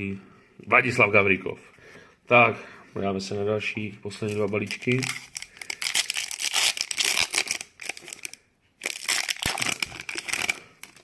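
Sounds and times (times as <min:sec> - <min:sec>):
card pack wrapper crinkling and tearing: 0:04.2 - 0:11.0.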